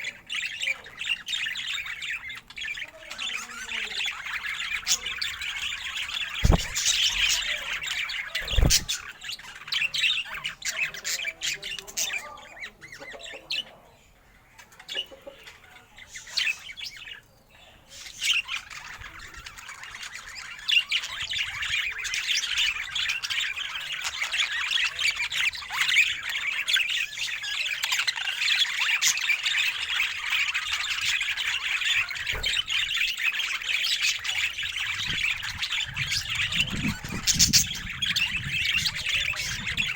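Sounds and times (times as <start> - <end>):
budgerigar chattering and warbling: 1.8 - 13.8
short low thump: 6.4 - 7.0.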